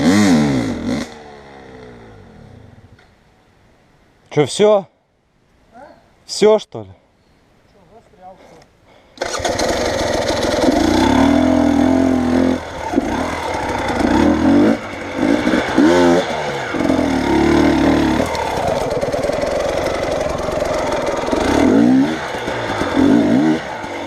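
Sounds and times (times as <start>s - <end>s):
vehicle engine revving hard: 9.3s - 24.0s.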